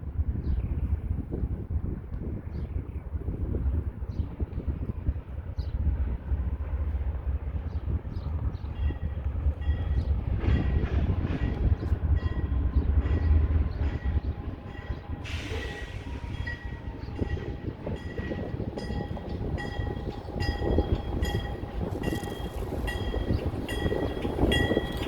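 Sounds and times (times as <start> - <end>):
freight train rumble: 0.0 - 25.0
train cars rolling by: 5.2 - 25.0.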